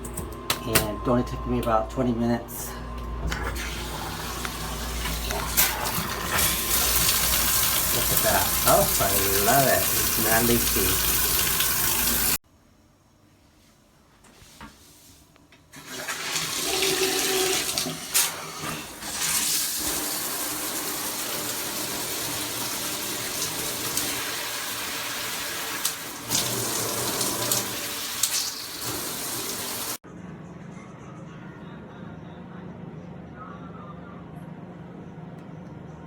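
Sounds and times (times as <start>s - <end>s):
shower head spraying water: 3.8s - 12.4s, 19.1s - 30.0s.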